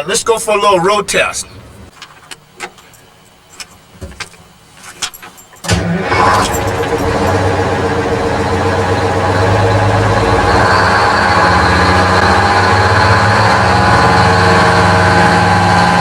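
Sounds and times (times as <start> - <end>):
truck diesel engine running: 5.7 - 16.0.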